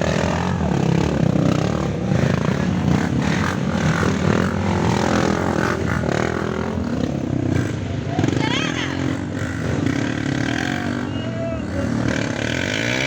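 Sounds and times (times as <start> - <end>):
motorcycle engines droning: 0.0 - 13.0.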